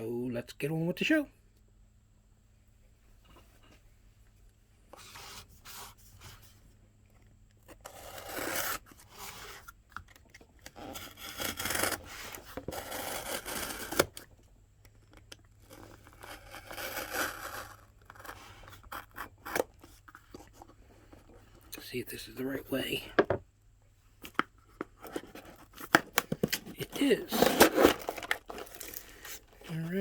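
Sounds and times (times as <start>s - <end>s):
packaging rubbing and tearing: 7.7s - 9.7s, 10.7s - 14.2s, 15.6s - 20.0s, 26.7s - 30.0s.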